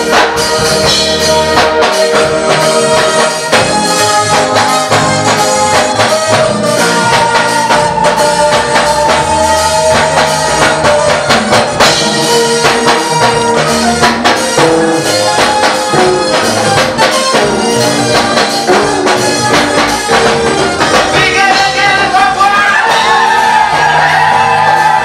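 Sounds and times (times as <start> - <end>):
drum kit and tambourine beat: 0.0 - 25.0
gospel band playing: 0.0 - 25.0
person singing: 20.9 - 23.5.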